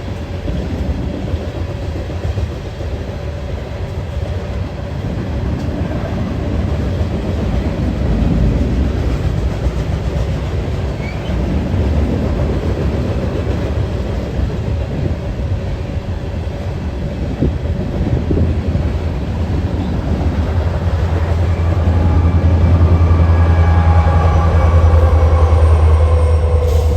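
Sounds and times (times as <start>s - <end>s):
train rumbling past: 0.0s - 26.9s.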